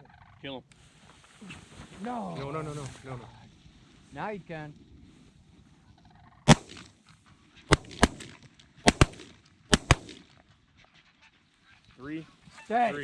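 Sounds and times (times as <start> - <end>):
shotgun shots: 6.5 - 7.0, 7.7 - 10.3.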